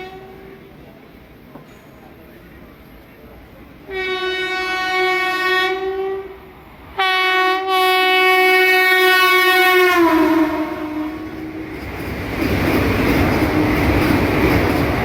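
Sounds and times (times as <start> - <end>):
train horn blasts: 0.0 - 0.6, 3.9 - 6.4, 7.0 - 11.8
rush of passing train: 0.0 - 15.0.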